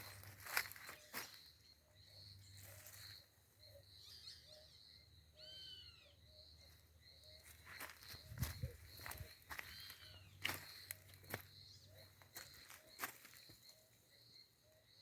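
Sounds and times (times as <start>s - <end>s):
insects singing with pulsing tone: 0.0s - 15.0s.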